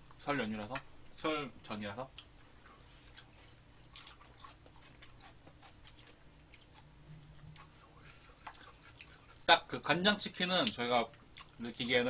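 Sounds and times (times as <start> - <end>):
faint chewing: 2.1 - 9.5, 10.2 - 12.0.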